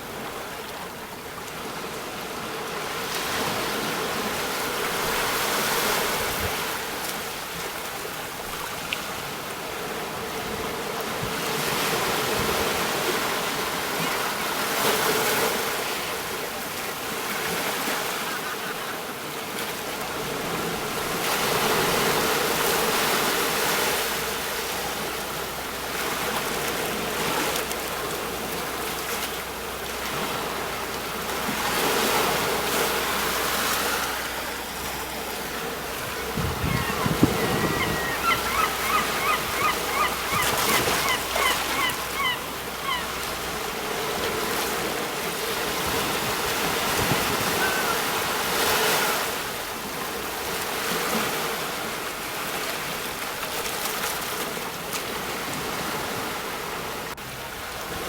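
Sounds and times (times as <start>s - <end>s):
sea waves breaking on shore: 0.0s - 58.0s
bird calling: 17.7s - 19.3s, 36.0s - 43.6s, 47.3s - 49.1s.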